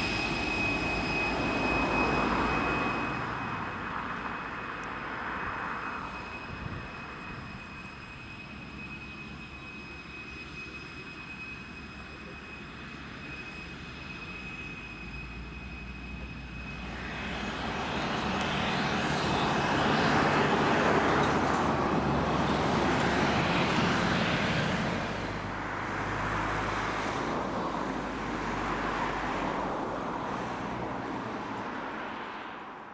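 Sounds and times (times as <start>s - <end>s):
high whistling tones: 0.0s - 20.2s
jet engines roaring: 0.0s - 32.9s.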